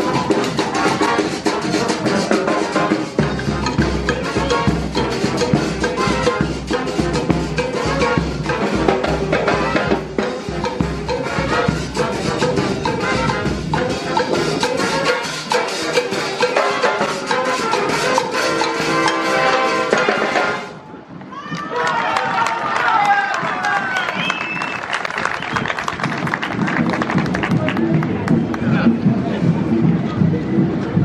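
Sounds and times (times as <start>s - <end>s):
festive brass band tune: 0.0s - 20.8s.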